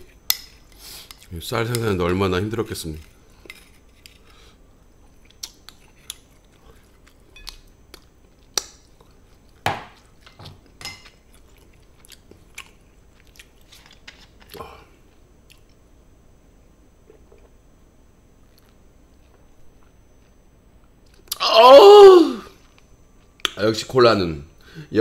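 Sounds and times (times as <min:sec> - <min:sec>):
chewing food: 0:11.0 - 0:14.6.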